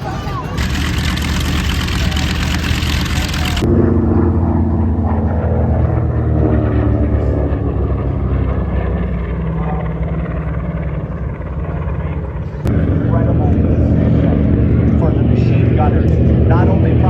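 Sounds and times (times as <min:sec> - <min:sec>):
propeller aircraft engines droning: 0:00.0 - 0:17.0.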